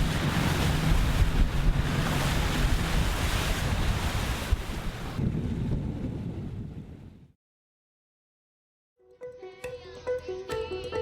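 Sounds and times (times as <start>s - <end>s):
sea wash: 0.0s - 7.1s
wind buffeting microphone: 0.0s - 7.4s.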